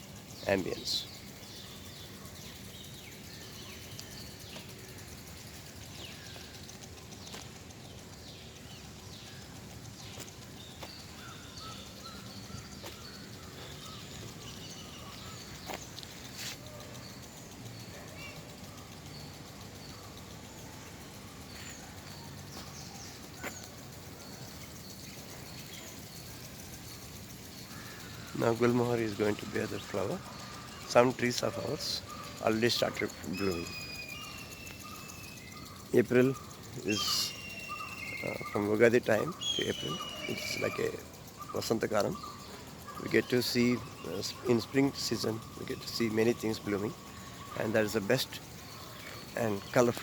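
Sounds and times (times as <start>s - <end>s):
low background hum: 0.0s - 49.9s
birds chirping and calling: 0.0s - 50.0s.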